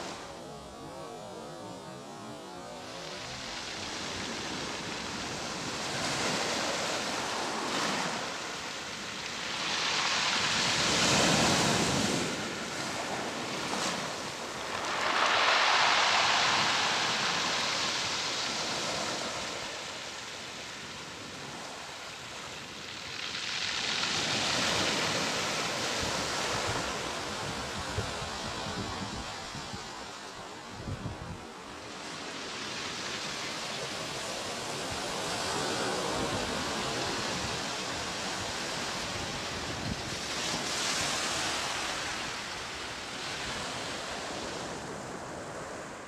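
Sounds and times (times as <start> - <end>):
sea waves washing on shore: 2.4 - 46.0.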